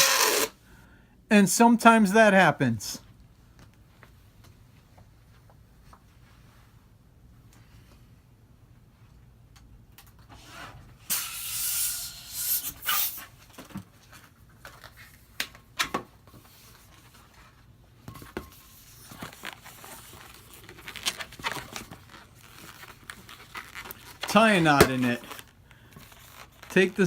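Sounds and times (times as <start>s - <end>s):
balloon squeaking and rubbing: 0.0s - 0.5s
balloon being inflated: 0.0s - 0.6s, 11.0s - 13.3s.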